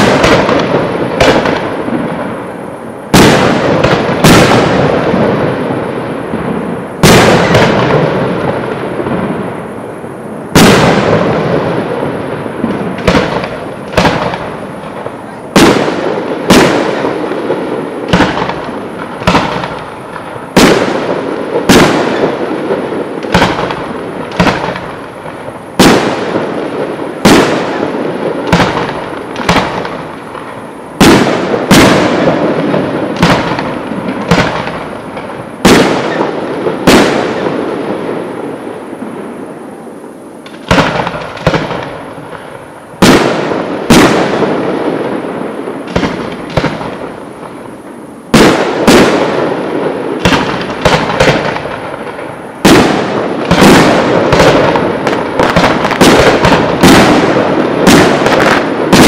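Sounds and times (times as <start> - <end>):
rolling echo of bangs: 0.0 - 2.3, 3.1 - 9.4, 10.6 - 30.1, 31.0 - 38.2, 48.4 - 59.0
firework shells bursting: 10.5 - 37.7.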